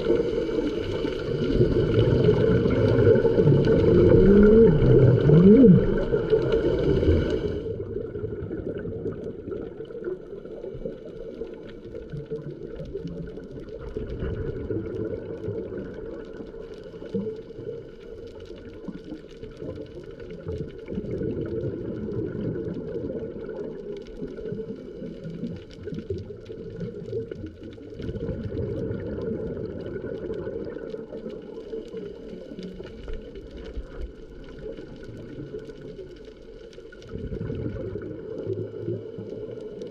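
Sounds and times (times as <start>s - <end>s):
crackle of small clicks: 0.0s - 39.9s
steady low underwater hum: 0.0s - 39.9s.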